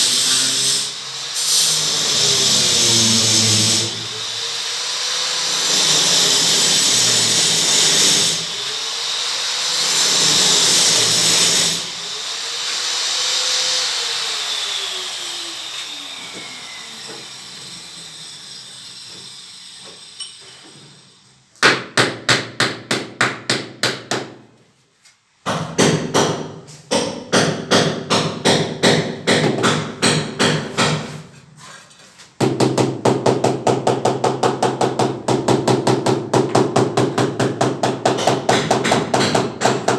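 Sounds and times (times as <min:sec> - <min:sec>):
electric power tool running: 0:00.0 - 0:20.8
rapid sharp knocks: 0:25.5 - 0:31.0, 0:32.4 - 0:39.9.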